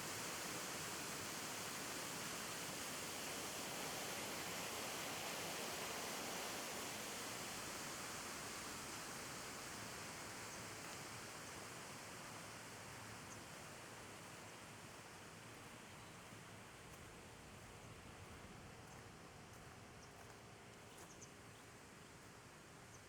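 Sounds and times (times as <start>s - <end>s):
wind: 0.0s - 23.0s.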